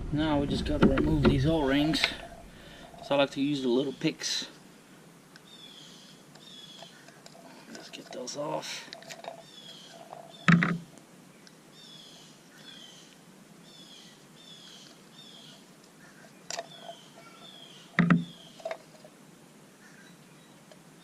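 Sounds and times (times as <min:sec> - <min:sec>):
bird chirping: 0:05.4 - 0:19.0, 0:19.8 - 0:20.7.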